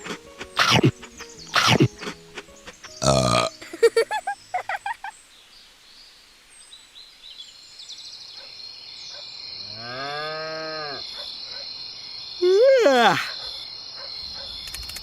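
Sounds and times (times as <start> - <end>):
cow mooing: 9.7 - 11.0.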